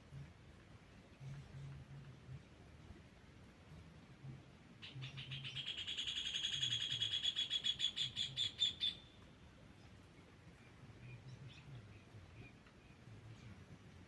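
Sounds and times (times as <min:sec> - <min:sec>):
bird singing fast trill: 0:04.8 - 0:09.2
faint bird chirps: 0:04.8 - 0:14.0.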